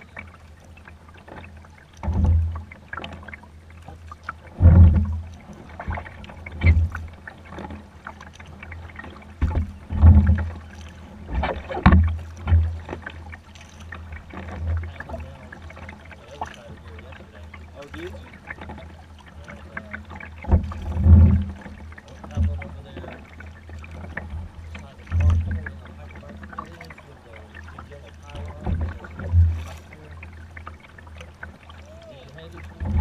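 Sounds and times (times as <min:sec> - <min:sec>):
paddle splashes in water: 0:00.0 - 0:33.0
low thumps: 0:04.6 - 0:07.2, 0:09.4 - 0:10.5, 0:19.9 - 0:23.1.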